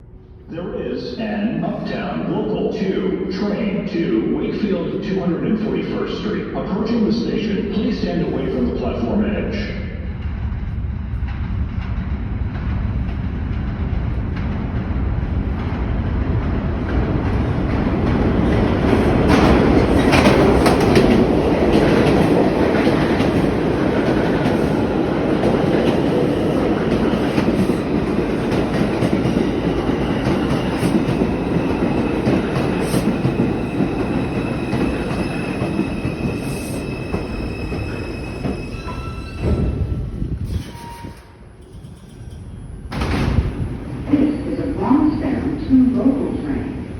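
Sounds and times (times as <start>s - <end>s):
subway train rumbling over rails: 0.0s - 46.9s
high brake squealing: 32.8s - 42.4s.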